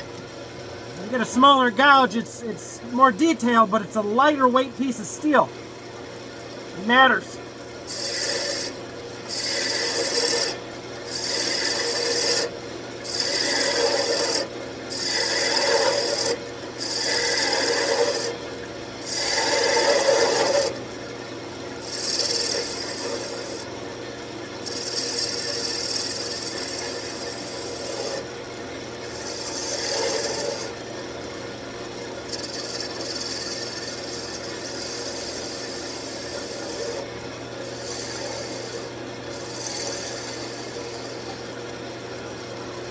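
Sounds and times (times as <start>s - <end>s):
gouge cutting spinning wood: 7.8s - 18.3s, 19.0s - 20.7s, 21.8s - 23.7s, 24.6s - 28.3s, 29.1s - 30.8s, 32.2s - 41.4s
lathe motor humming: 32.3s - 37.0s.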